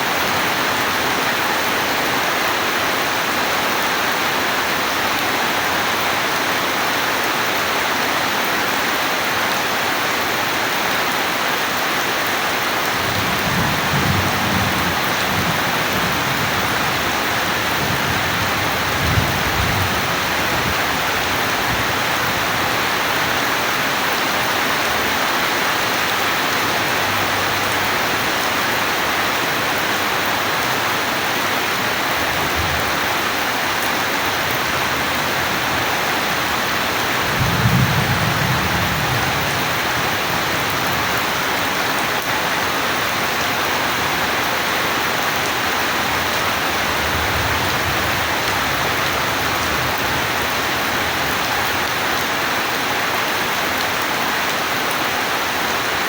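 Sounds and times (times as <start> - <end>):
heavy rain: 0.0 - 56.0
distant thunder rolling: 13.0 - 22.0.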